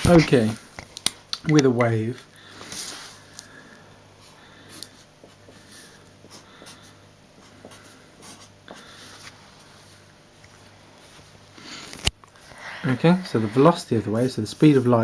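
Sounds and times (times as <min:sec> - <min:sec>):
low electrical hum: 0:00.0 - 0:15.0
pen scratching on paper: 0:06.2 - 0:08.8.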